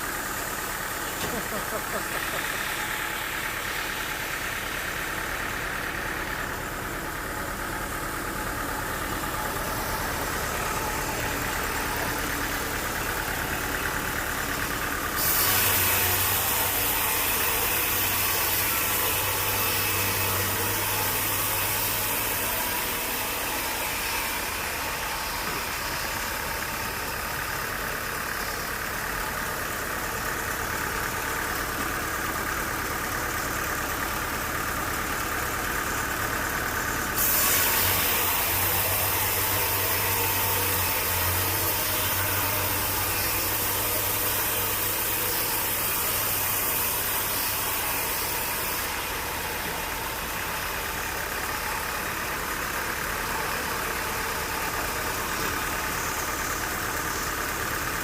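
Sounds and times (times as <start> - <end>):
sawmill machinery engine hum: 0.0 - 58.0
loud hiss: 15.0 - 25.4, 37.1 - 49.5.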